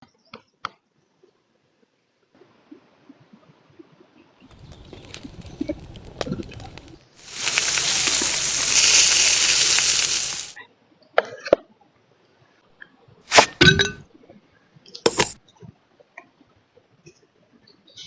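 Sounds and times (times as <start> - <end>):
loud steady hiss: 7.2 - 10.6.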